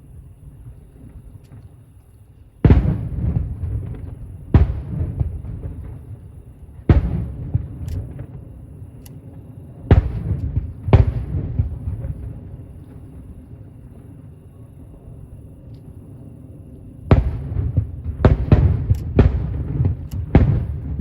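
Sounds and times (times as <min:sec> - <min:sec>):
distant firework shells bursting: 0:02.6 - 0:13.6, 0:17.0 - 0:21.0.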